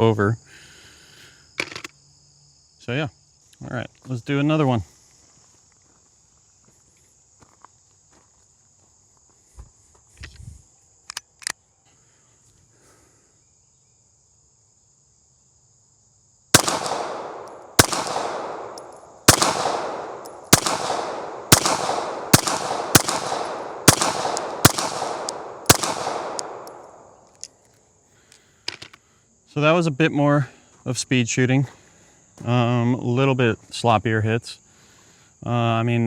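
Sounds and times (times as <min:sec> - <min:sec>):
pistol shots with ringing echo: 0:16.6 - 0:27.2.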